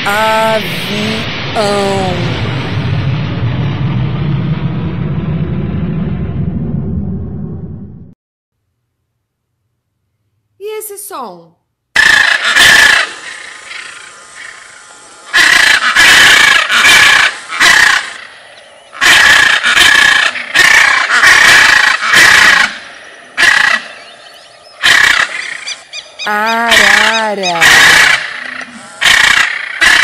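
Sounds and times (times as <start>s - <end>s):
macaw screeching: 12.0s - 18.3s, 18.9s - 30.0s.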